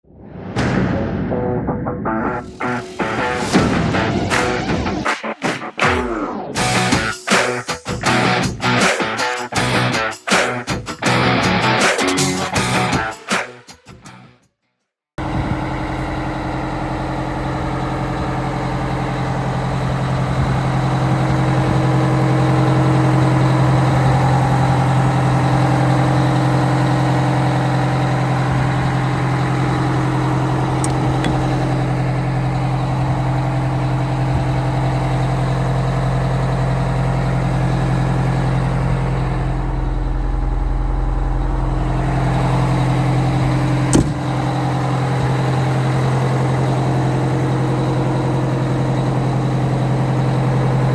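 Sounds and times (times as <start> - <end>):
diesel truck engine running: 2.3 - 7.4, 15.2 - 50.9
sharp click: 43.9 - 44.2.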